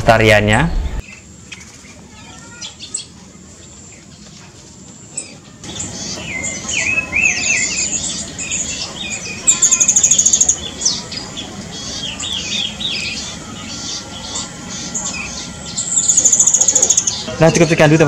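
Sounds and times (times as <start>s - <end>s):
birds chirping and calling: 1.0s - 18.0s
fast high bird trill: 5.2s - 18.0s.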